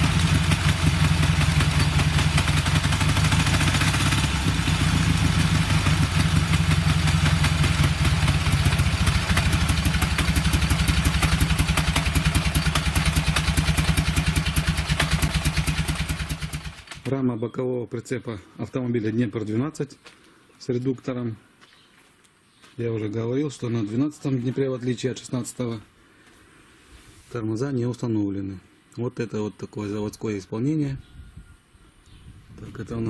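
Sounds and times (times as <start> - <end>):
motorcycle engine idling: 0.0 - 17.1.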